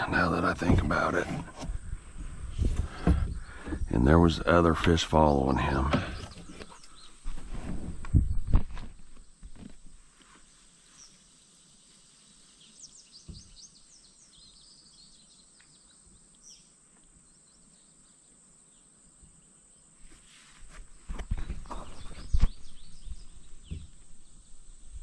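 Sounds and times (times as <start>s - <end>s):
faint songbird chirping: 0.0s - 25.0s
steady high hiss: 9.0s - 25.0s.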